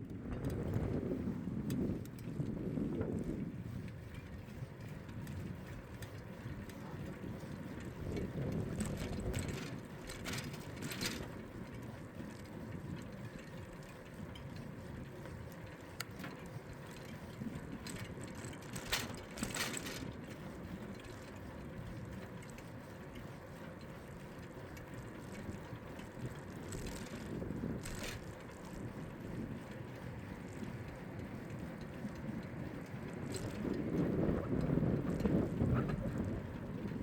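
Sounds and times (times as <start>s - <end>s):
wind and tyre noise: 0.0s - 37.0s
bicycle freewheel ticking: 1.6s - 37.0s.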